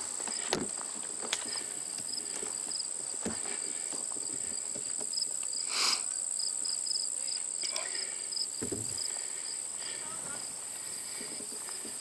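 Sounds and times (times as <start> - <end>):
footsteps on a trail: 0.0 - 5.6, 6.6 - 12.0
insect trill: 4.5 - 12.0.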